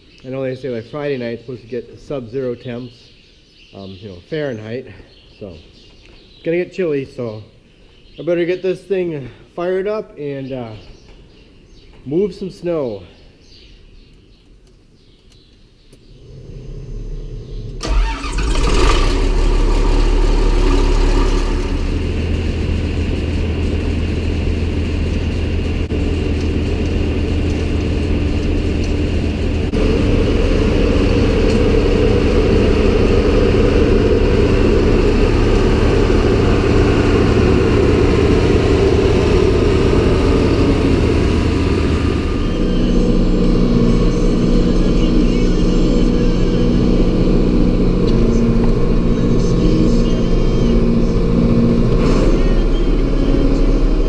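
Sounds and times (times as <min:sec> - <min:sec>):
tractor starter cranking: 0:17.8 - 0:23.3
tractor engine running: 0:17.8 - 0:54.0.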